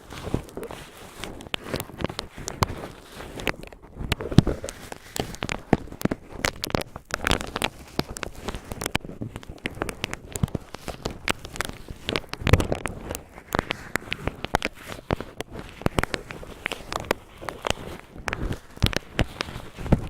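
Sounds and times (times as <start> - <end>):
cotton swabs crinkling: 0.0 - 20.0.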